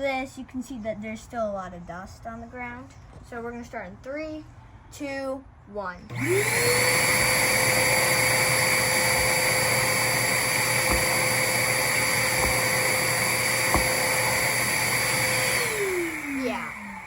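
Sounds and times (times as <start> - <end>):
shop vacuum running: 6.1 - 17.0.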